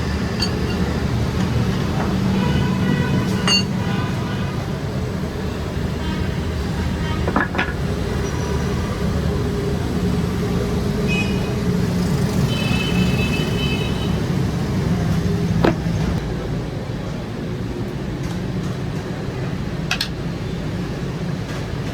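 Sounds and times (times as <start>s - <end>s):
low mechanical drone: 0.0s - 12.3s.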